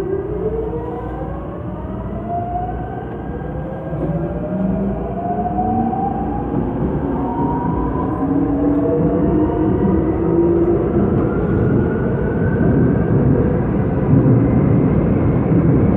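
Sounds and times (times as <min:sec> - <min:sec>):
traction motors whining: 0:00.0 - 0:12.4
wheels rumbling on track: 0:00.0 - 0:15.9.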